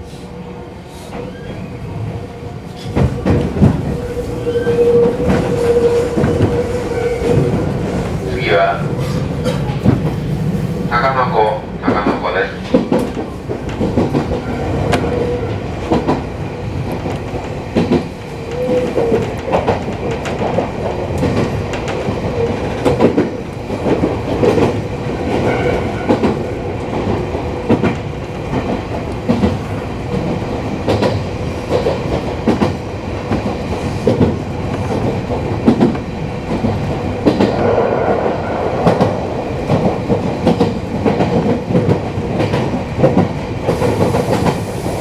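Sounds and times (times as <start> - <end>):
train running gear rumble: 0.0 - 45.0.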